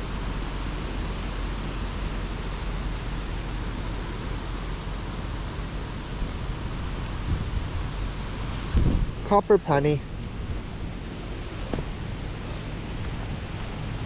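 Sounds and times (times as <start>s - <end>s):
wind buffeting microphone: 6.2s - 14.0s
low thuds: 10.0s - 13.8s.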